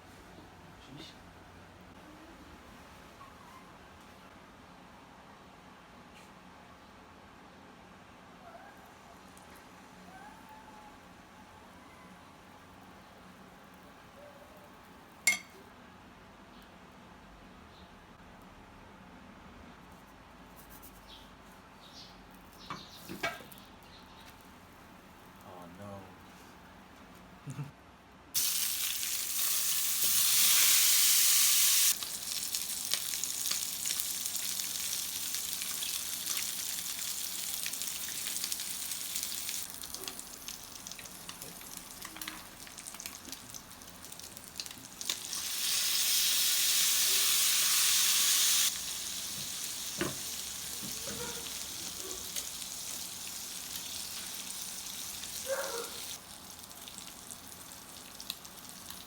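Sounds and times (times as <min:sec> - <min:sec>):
food sizzling in frying pan: 0:28.4 - 0:59.0.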